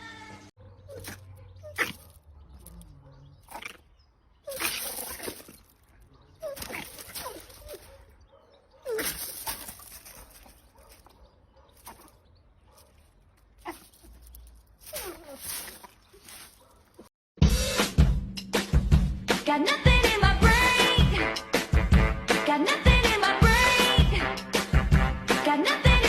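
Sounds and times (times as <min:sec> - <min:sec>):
animal squeaky cries: 0:06.4 - 0:07.9.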